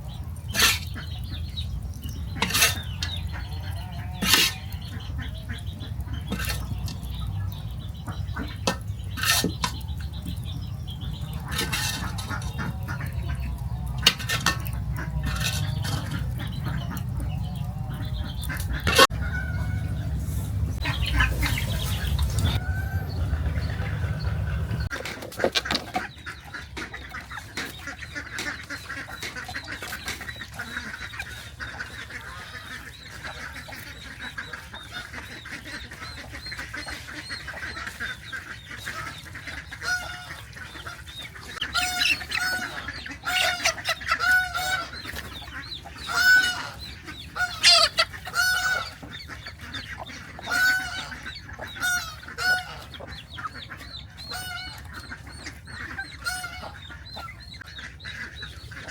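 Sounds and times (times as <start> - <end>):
poultry honking calls: 0.0 - 58.9.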